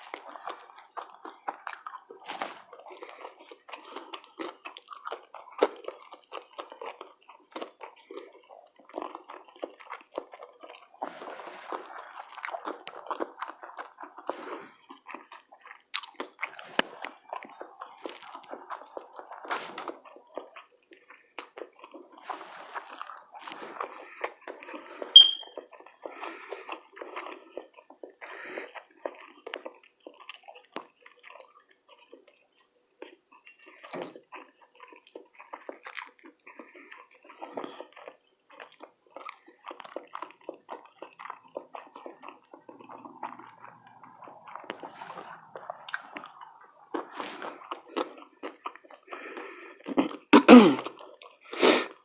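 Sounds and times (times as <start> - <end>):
chewing and wet mouth sounds: 0.0 - 52.0
high-pitched ping: 25.2 - 25.5.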